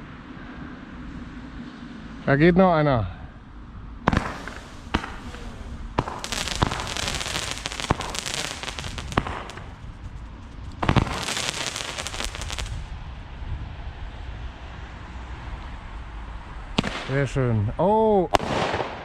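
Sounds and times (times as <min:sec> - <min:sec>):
fireworks bangs: 0:04.0 - 0:12.9, 0:16.8 - 0:17.4
fireworks crackling: 0:04.1 - 0:12.9, 0:16.8 - 0:17.4.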